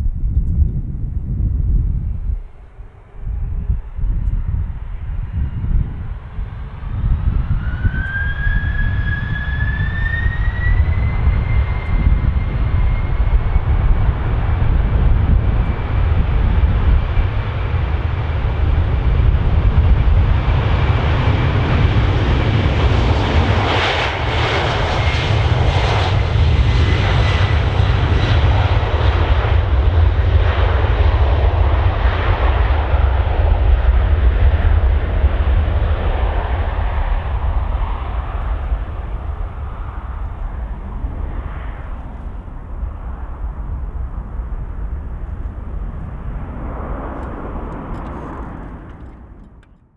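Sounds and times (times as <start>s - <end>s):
jet engines roaring at takeoff: 0.0s - 49.9s.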